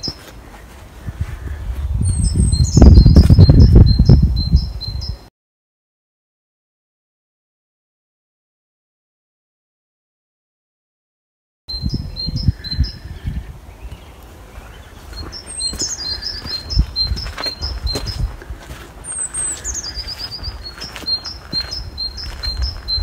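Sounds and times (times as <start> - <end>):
songbird singing: 0.0 - 5.3, 11.7 - 23.0.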